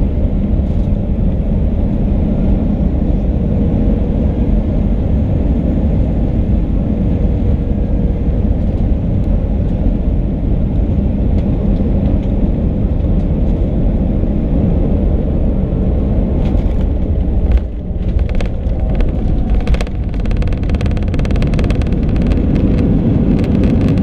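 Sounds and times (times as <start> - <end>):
aircraft engine and airflow rumble: 0.0 - 24.0
sudden jolt: 18.0 - 24.0.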